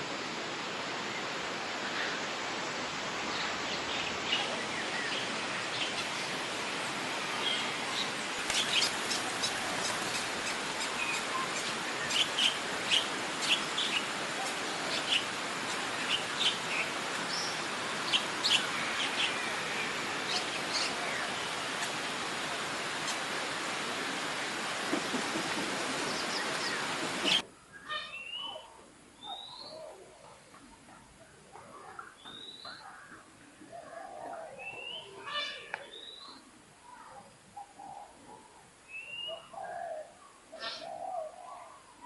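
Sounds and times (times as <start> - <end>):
steady hiss: 0.0 - 28.2.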